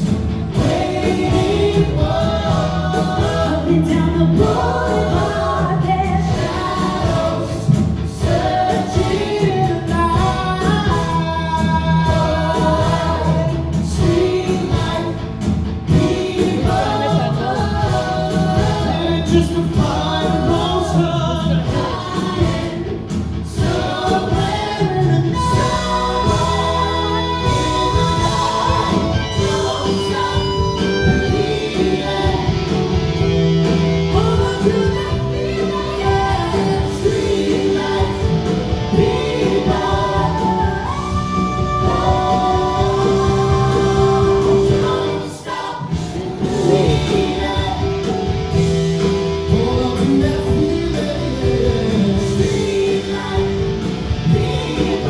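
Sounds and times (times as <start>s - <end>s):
band playing: 0.0s - 55.0s
voices singing in harmony: 0.0s - 55.0s.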